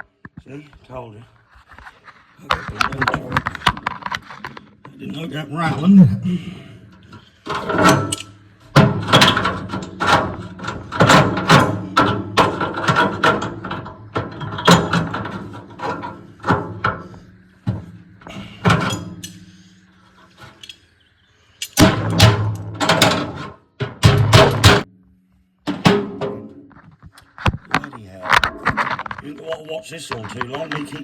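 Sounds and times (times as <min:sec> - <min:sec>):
irregular knocks and clanks: 0:01.6 - 0:20.8, 0:21.6 - 0:24.9, 0:25.7 - 0:31.0.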